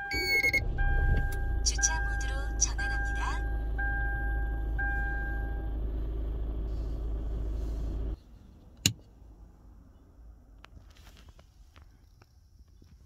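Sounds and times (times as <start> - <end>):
two-tone warning chime: 0.0 - 5.6
car engine idling: 0.1 - 8.2.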